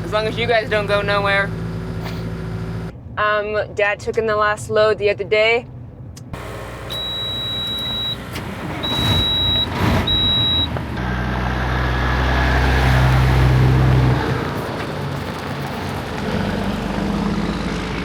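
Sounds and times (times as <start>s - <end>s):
truck engine revving: 0.0s - 2.9s, 6.4s - 18.0s
truck backup alarm beeping: 6.4s - 11.4s.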